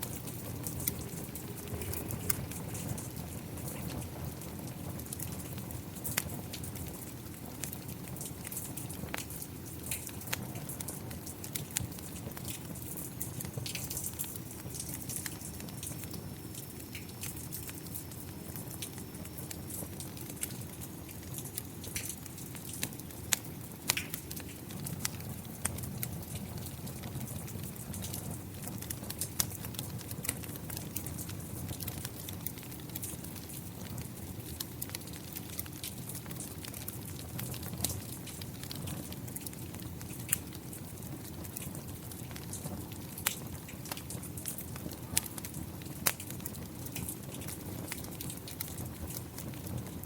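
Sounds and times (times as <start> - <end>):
rain rumbling: 0.0 - 10.1
falling rain: 0.0 - 50.0
wood fire crackling: 0.0 - 50.0.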